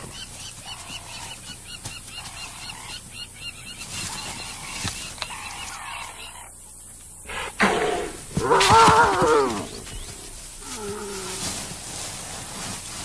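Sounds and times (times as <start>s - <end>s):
hyenas honking calls: 7.3s - 11.6s.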